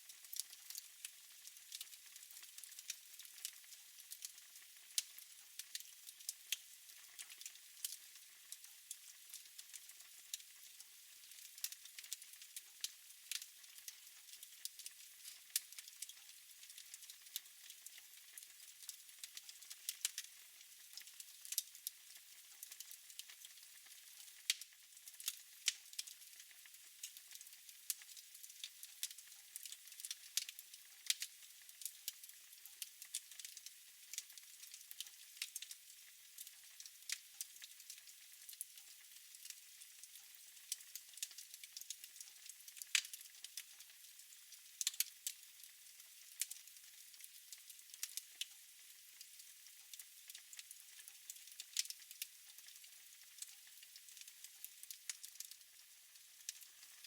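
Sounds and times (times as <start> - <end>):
fire crackling and snapping: 0.3 - 0.9, 5.0 - 5.9, 13.3 - 13.5, 20.9 - 21.9, 22.8 - 31.8, 32.5 - 33.5, 34.1 - 35.7, 39.4 - 40.2, 40.9 - 43.3, 44.8 - 45.1, 49.9 - 52.7.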